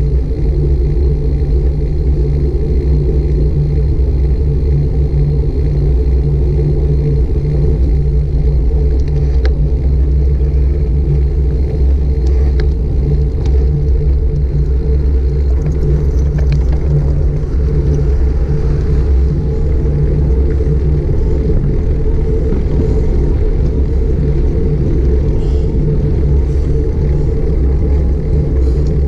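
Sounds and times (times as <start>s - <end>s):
wind and road rumble: 0.0s - 29.0s
faint ticks: 7.8s - 18.2s.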